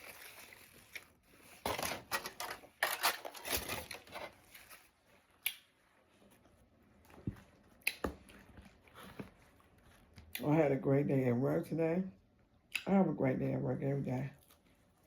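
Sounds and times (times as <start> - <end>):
wrapping crinkling and rustling: 0.0 - 10.2.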